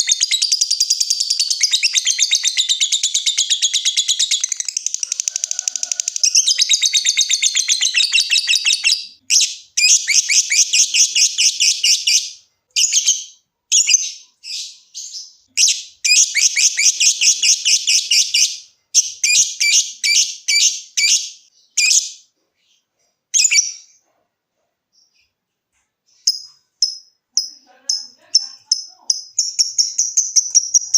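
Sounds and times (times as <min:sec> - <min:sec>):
lovebird chattering trills: 0:26.3 - 0:30.9.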